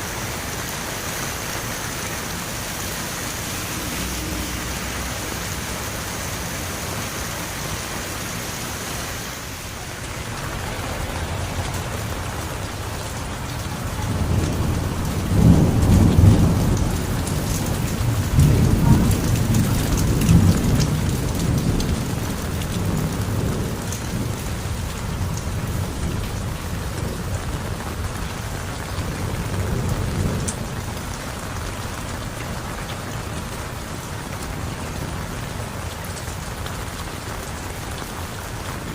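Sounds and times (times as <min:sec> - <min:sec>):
heavy rain falling: 0:00.0 - 0:38.9
low roll of thunder: 0:10.0 - 0:28.1.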